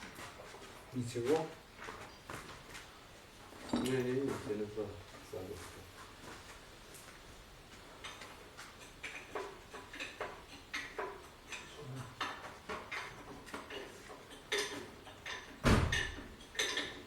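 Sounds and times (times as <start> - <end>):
metal tools clinking: 3.5 - 4.6.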